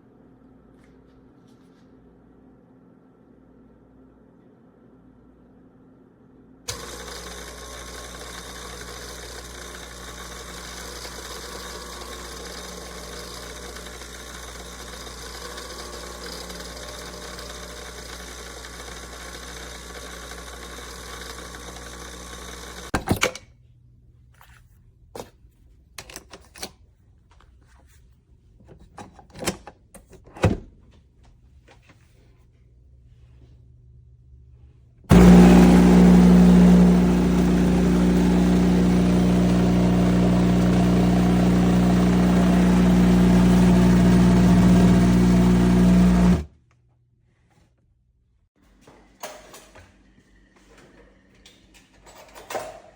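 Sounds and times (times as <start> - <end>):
coffee machine pump buzzing: 6.7 - 22.9, 35.1 - 46.5.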